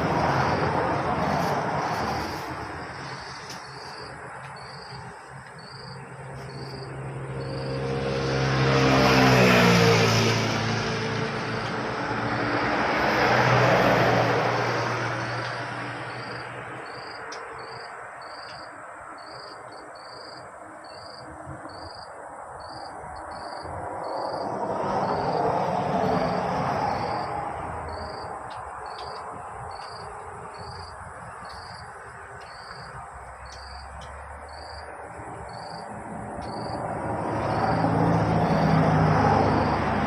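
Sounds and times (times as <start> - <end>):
insects chirping: 0.0 - 40.0
vehicles passing on road: 0.0 - 40.0.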